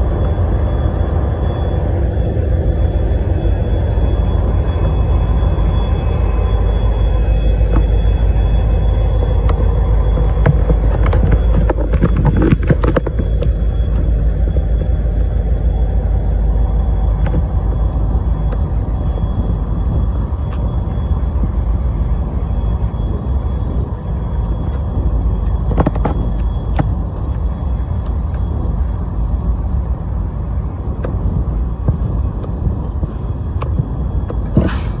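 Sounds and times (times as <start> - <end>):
sharp clicks and knocks: 10.2 - 14.1
diesel locomotives rumbling by: 13.2 - 35.0.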